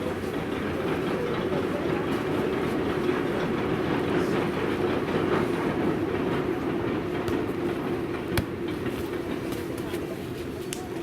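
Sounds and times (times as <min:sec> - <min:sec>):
moving train running noise: 0:00.0 - 0:11.0.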